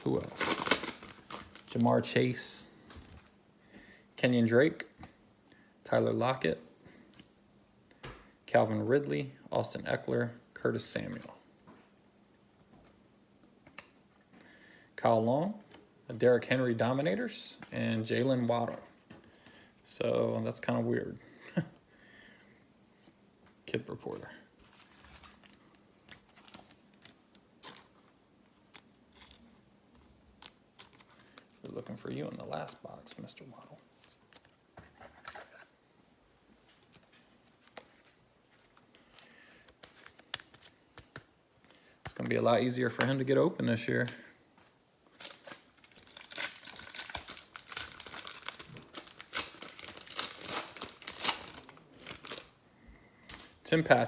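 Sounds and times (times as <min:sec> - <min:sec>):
foil wrapper ripping and crinkling: 0:00.0 - 0:01.9, 0:24.6 - 0:28.0, 0:45.1 - 0:52.6
trading cards clicking and rustling: 0:38.7 - 0:43.1.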